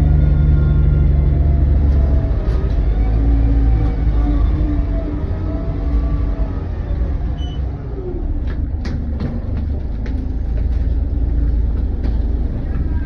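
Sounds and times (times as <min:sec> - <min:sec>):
bus diesel engine rumbling: 0:00.0 - 0:13.0.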